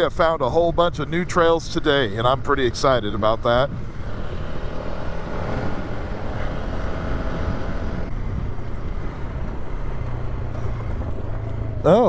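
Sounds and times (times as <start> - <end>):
quad bike engine running: 2.6 - 12.0.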